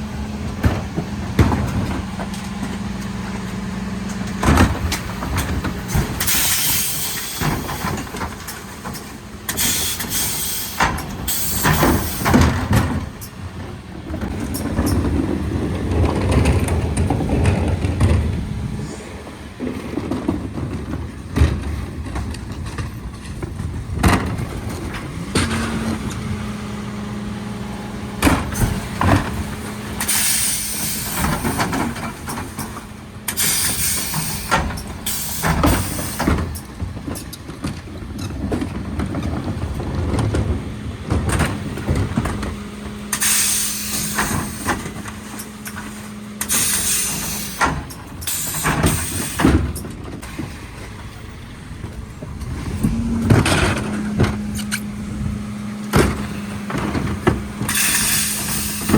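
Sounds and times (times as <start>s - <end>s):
truck engine hum: 0.0s - 58.9s
air hissing: 9.6s - 12.4s, 43.1s - 44.8s, 46.4s - 49.6s, 57.7s - 58.9s.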